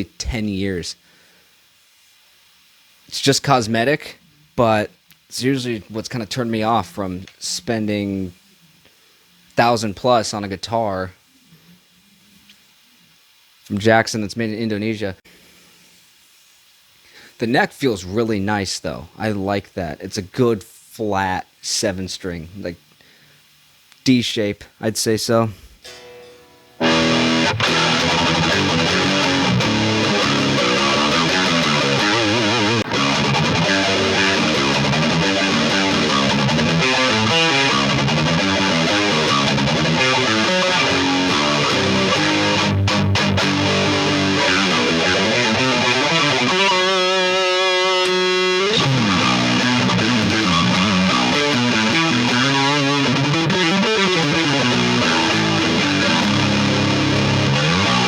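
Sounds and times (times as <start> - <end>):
electric guitar riffing: 25.8 - 58.0.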